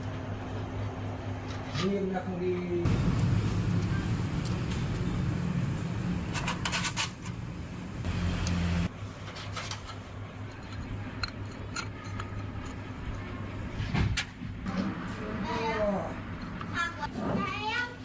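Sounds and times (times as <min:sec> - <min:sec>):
low engine hum: 0:07.3 - 0:08.9.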